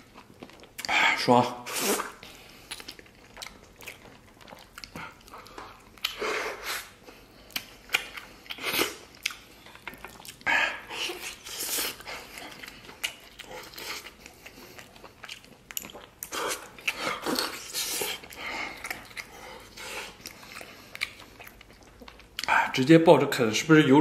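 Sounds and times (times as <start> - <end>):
person biting and chewing: 7.5 - 22.5.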